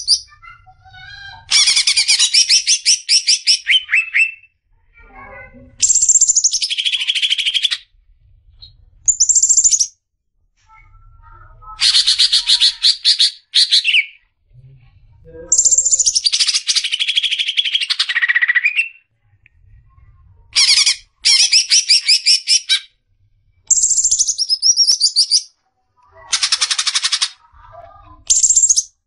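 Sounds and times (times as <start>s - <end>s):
bird singing rapid high notes: 9.1s - 9.9s, 23.7s - 25.5s.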